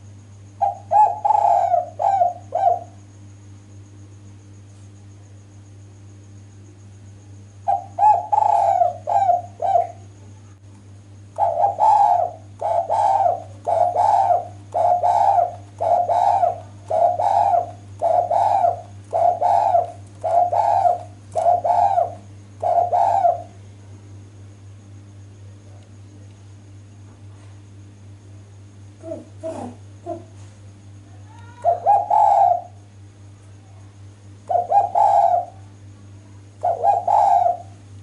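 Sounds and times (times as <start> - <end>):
dove cooing: 0.6 - 3.0, 7.6 - 10.1, 11.4 - 23.6, 29.0 - 30.5, 31.4 - 32.9, 34.4 - 35.8, 36.5 - 37.8.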